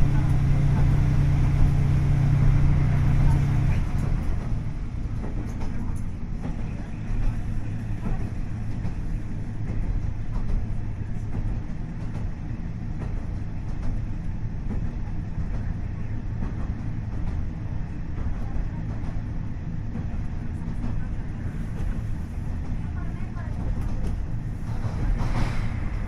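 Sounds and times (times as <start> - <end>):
diesel engine droning: 0.0 - 5.3
train wheels clicking on track: 0.0 - 26.0.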